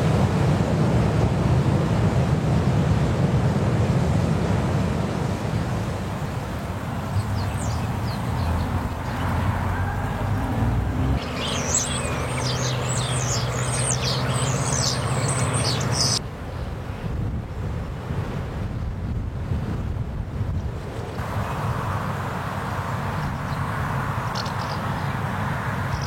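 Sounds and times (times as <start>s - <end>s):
wind noise: 0.0s - 26.0s
birds chirping: 5.6s - 16.7s, 22.9s - 26.0s.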